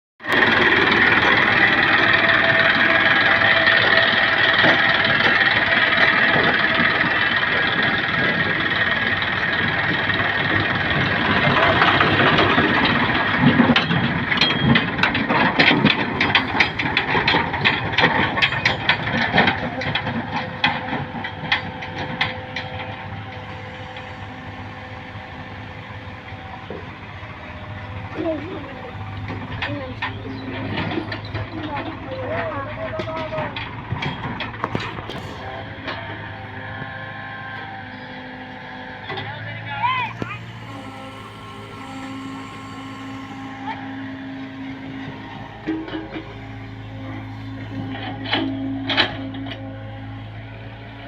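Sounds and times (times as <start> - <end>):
tractor engine running: 0.2 - 51.0.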